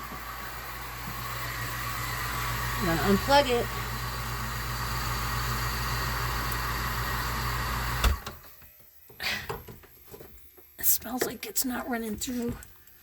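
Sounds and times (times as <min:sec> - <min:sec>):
electric water pump humming: 0:00.0 - 0:13.0.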